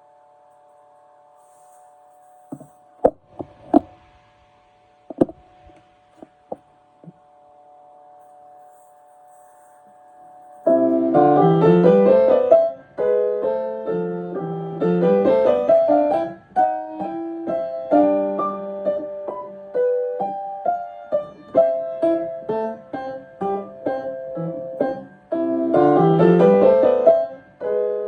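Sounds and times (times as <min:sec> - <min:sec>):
piano playing: 0:10.7 - 0:28.0.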